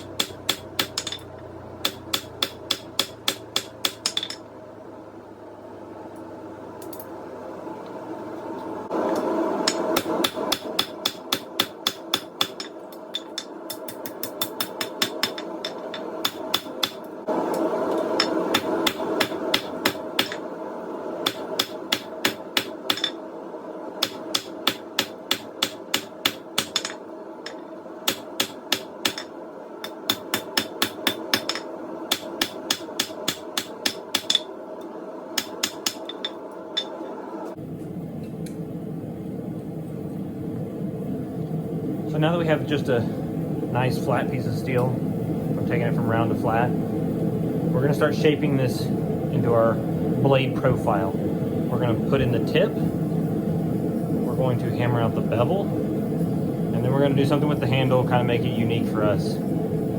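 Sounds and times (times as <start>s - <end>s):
hammer striking hot steel: 0.0s - 4.5s, 9.1s - 20.5s, 21.2s - 23.2s, 24.0s - 34.5s, 35.3s - 37.1s
steady hum: 0.0s - 59.9s.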